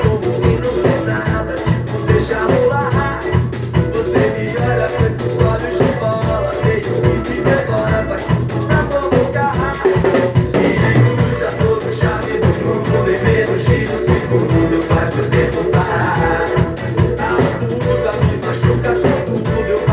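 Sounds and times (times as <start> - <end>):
drum kit beat: 0.0 - 19.9
recorded band music: 0.0 - 19.9.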